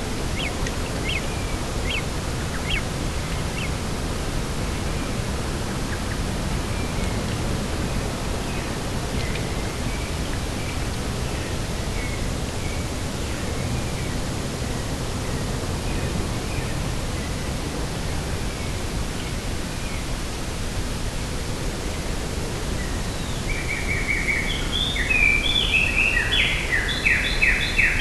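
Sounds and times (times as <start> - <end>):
wind with low rumble: 0.0 - 28.0
faint high bird chirps: 0.3 - 3.8.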